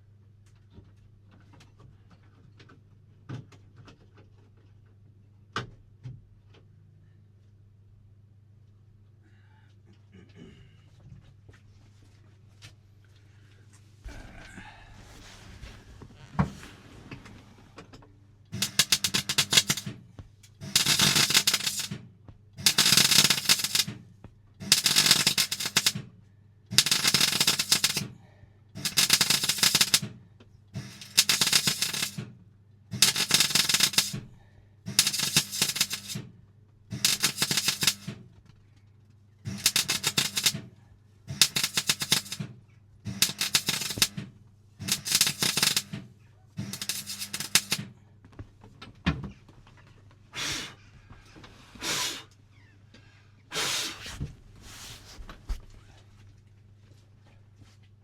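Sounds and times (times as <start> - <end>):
mig welder crackling: 18.5 - 24.0, 24.6 - 26.1, 26.7 - 28.1, 28.8 - 30.2, 30.8 - 34.3, 34.9 - 38.2, 39.5 - 47.9.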